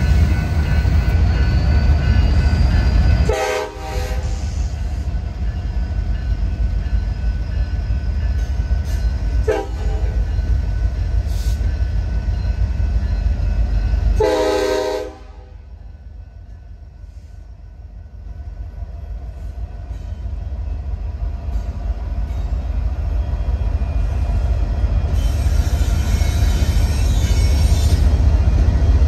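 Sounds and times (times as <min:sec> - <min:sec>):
train wheels rumbling on rail: 0:00.0 - 0:29.0
locomotive air horn blasts: 0:03.3 - 0:04.6, 0:09.4 - 0:10.2, 0:14.2 - 0:15.6.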